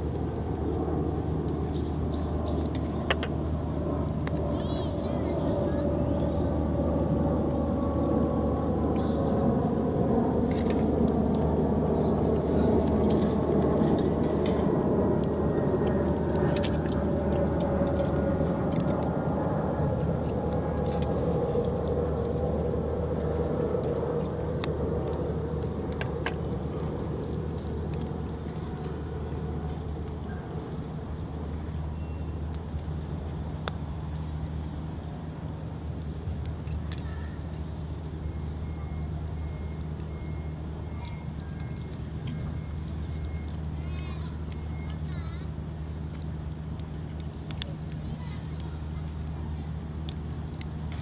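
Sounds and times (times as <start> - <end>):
low engine rumble: 0.0 - 51.0
faint clicks: 46.1 - 51.0.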